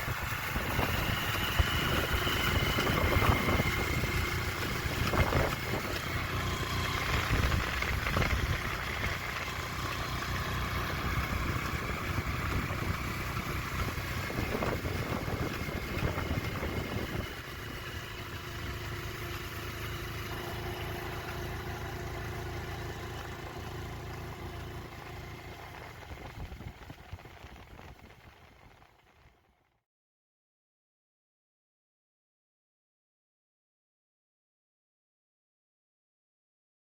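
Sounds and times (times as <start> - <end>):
vehicle engine running: 0.0 - 29.7.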